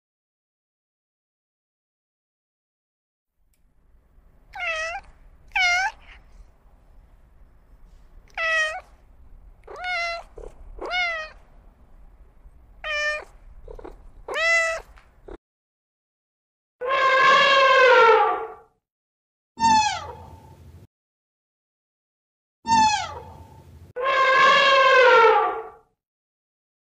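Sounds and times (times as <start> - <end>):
cat meowing: 4.5 - 6.4, 8.2 - 11.5, 12.8 - 15.4, 16.8 - 18.6, 19.6 - 20.5, 22.7 - 25.7.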